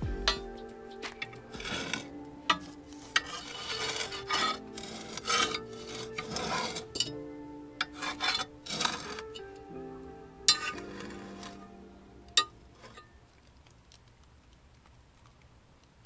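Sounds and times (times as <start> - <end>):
soft background music: 0.0 - 13.4
rough scraping and rubbing: 1.5 - 6.9, 7.9 - 9.3, 10.5 - 11.6.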